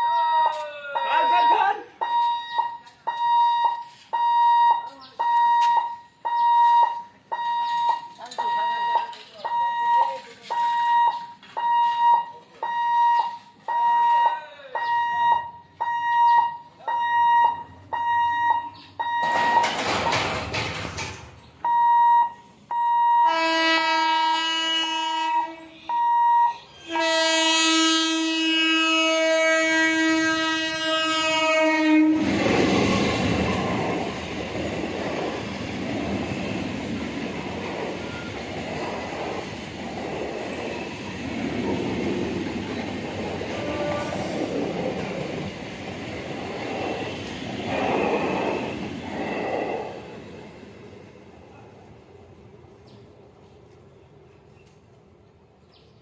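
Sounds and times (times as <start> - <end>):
train wheels on rails: 0.0 - 14.0, 14.8 - 21.8, 28.5 - 55.4
level crossing alarm beeping: 0.0 - 20.4, 21.6 - 23.6, 25.9 - 26.8
train horn: 23.2 - 32.4, 43.5 - 44.5.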